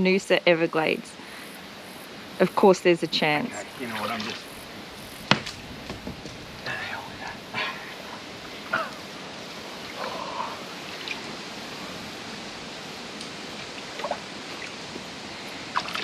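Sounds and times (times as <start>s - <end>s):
rushing water: 1.1s - 16.0s.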